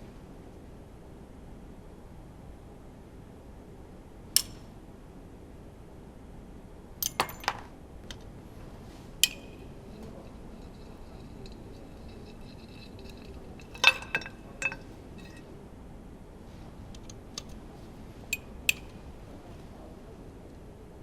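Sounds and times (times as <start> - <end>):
metal tools clinking: 7.0 - 7.6, 8.9 - 15.5, 18.3 - 19.1.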